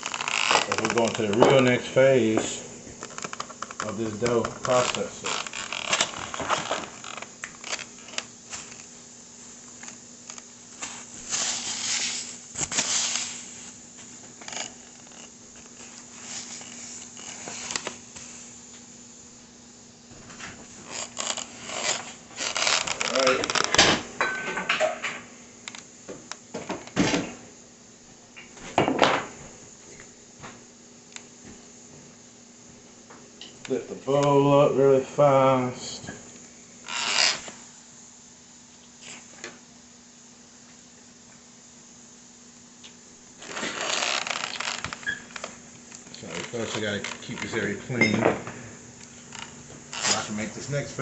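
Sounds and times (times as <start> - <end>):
faint steady hum: 0.0 - 51.0
wiping a table: 10.7 - 18.7.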